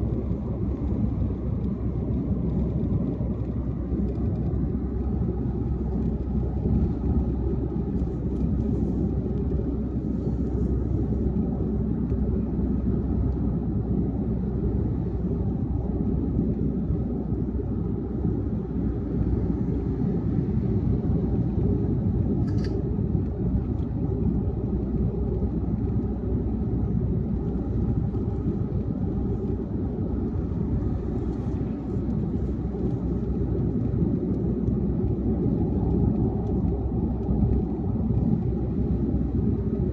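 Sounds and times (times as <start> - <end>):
road and tyre noise: 0.0 - 39.9.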